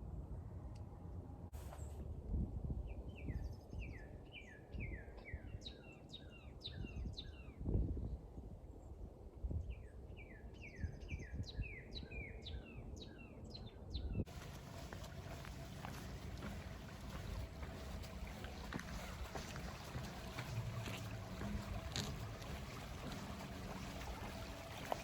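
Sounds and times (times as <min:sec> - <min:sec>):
songbird singing: 0:02.8 - 0:07.7, 0:09.6 - 0:25.0
steady hiss: 0:14.3 - 0:25.0.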